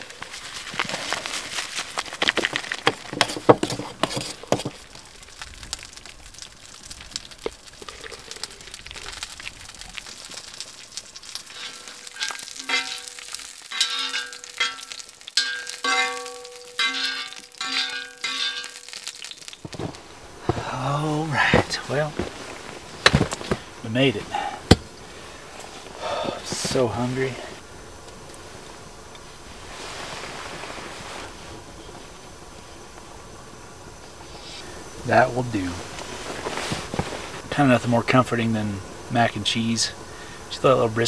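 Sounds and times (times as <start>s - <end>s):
spoon scraping metal pan: 11.5s - 18.8s
metal pan ringing: 12.2s - 19.0s.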